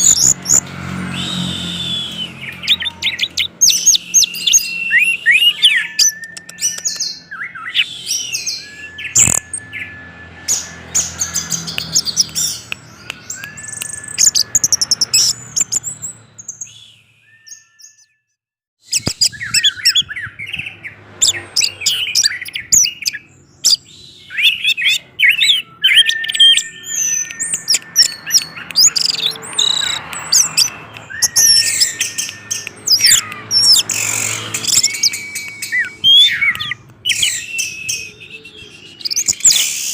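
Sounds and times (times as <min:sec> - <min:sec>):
thrush singing: 0:24.2 - 0:39.9.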